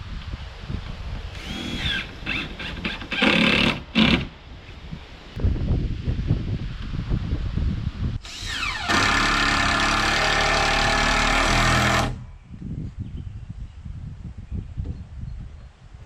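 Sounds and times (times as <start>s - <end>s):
power tool motor whining: 1.4s - 4.3s, 8.3s - 12.2s.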